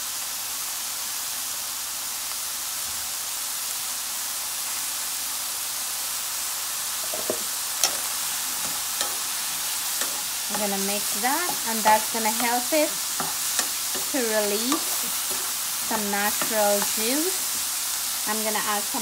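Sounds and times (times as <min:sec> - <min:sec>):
mushrooms sizzling in a pan: 0:00.0 - 0:19.0
wooden spatula knocking on pan: 0:07.0 - 0:08.1.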